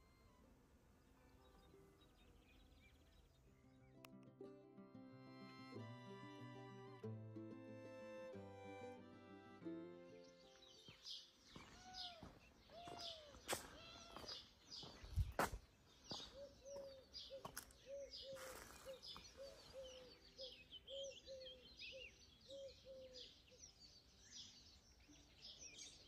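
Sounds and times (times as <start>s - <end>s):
birds chirping and twittering: 0.0s - 4.2s, 10.0s - 26.0s.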